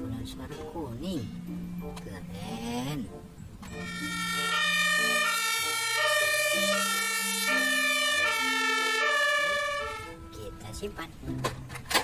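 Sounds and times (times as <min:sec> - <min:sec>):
electronic ambulance siren: 0:03.8 - 0:10.2.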